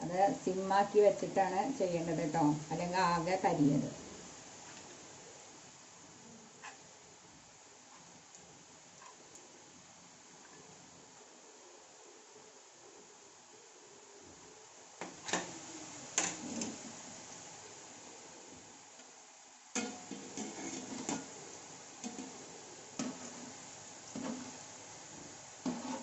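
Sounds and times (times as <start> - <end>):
oil frying hiss: 0.0 - 26.0
metal utensil scraping a pan: 16.2 - 16.8, 19.8 - 21.4, 22.0 - 22.4, 23.0 - 24.6, 25.6 - 26.0.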